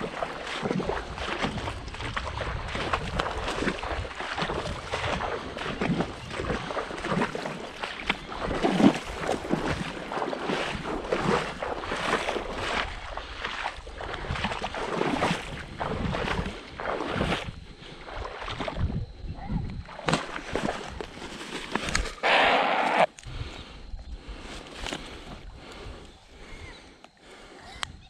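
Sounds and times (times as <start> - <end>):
water splashing around boat: 0.0 - 22.3.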